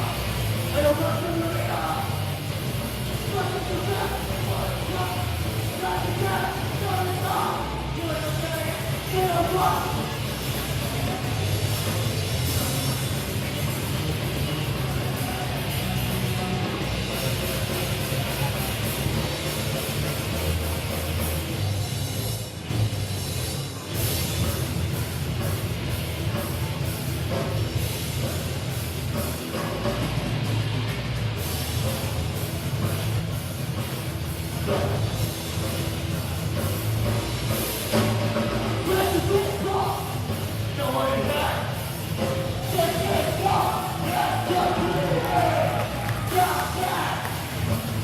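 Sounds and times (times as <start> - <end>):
distorted electric guitars: 0.0 - 48.0
metal band playing live: 0.0 - 48.0
pounding drum kit: 0.0 - 48.0.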